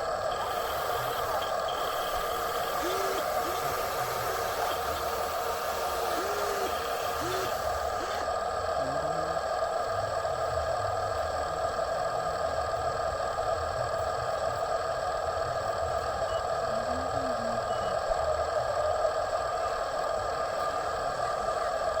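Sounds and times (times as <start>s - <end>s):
toy truck electric motor whirring: 0.0s - 8.4s.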